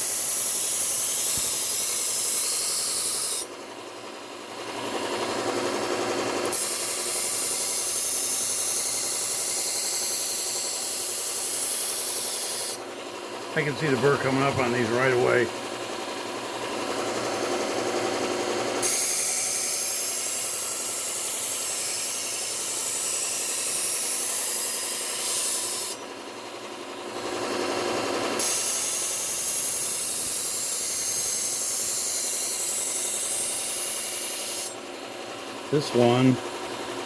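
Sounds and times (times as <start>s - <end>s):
knife grinding on belt sander: 0.0s - 3.5s, 4.6s - 13.0s, 16.7s - 26.0s, 27.2s - 35.0s.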